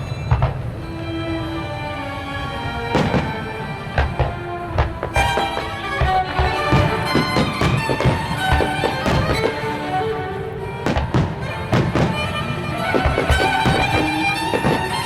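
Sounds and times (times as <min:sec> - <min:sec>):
fireworks bangs: 0:00.0 - 0:00.7, 0:02.9 - 0:10.1, 0:10.8 - 0:15.0
violin-led music: 0:00.0 - 0:15.0.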